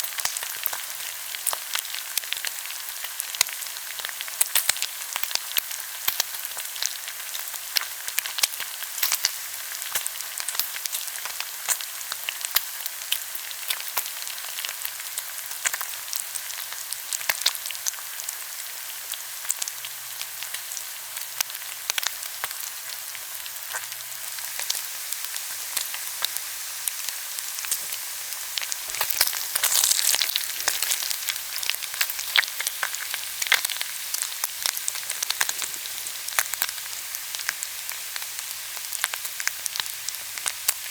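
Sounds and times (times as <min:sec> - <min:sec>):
meat sizzling on a grill: 0:00.0 - 0:40.9
spitting fat pops and crackles: 0:28.7 - 0:33.8.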